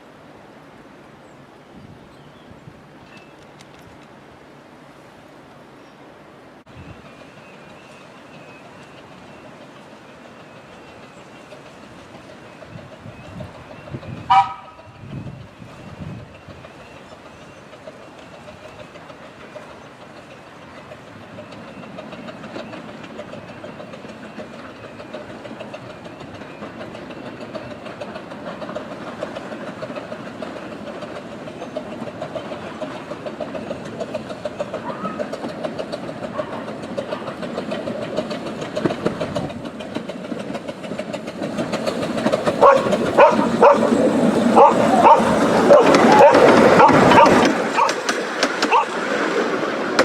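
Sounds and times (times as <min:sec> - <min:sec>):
train rumbling: 0:00.0 - 0:50.0.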